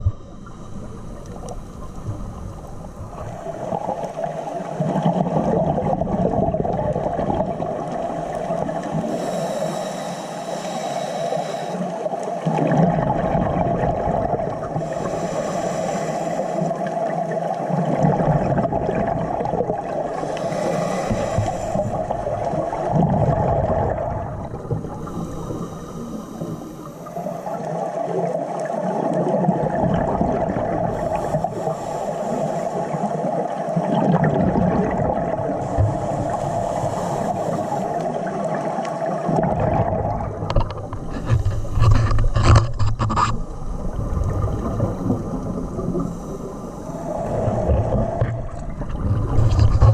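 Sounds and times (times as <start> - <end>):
steady hum: 0.0 - 4.8, 20.0 - 27.7
muffled underwater water movement: 0.0 - 49.9.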